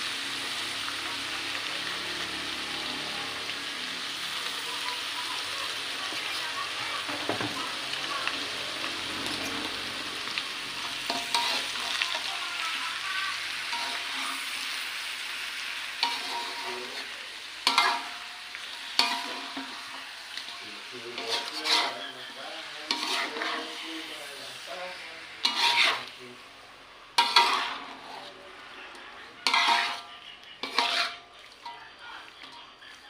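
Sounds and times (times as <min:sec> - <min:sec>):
squid sizzling in wok: 0:00.0 - 0:33.0
metal spatula scraping pan: 0:10.3 - 0:15.0, 0:15.8 - 0:26.2, 0:27.1 - 0:28.6, 0:29.2 - 0:33.0.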